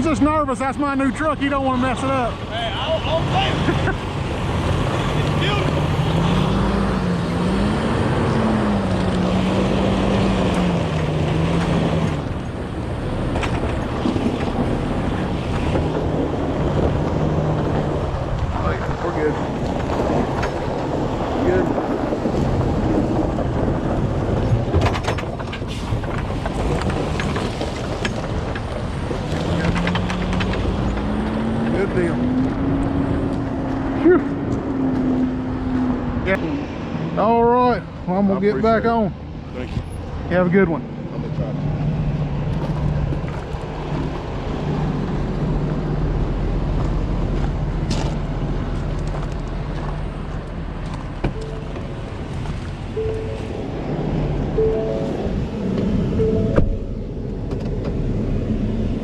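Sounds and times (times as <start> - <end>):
truck engine humming: 0.0 - 36.2, 41.7 - 59.0
diesel truck engine running: 40.1 - 59.0.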